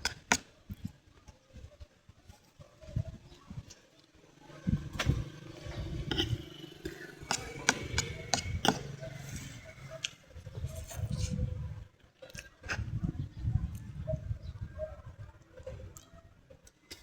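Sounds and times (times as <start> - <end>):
person chewing: 6.1 - 10.2.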